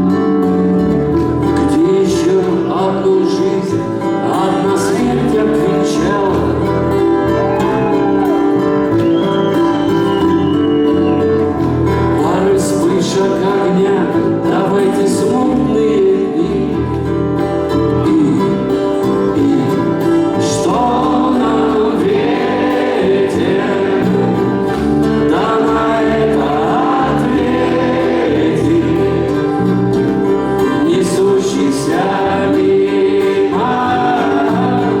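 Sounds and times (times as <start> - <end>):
live band playing: 17.5 - 31.4.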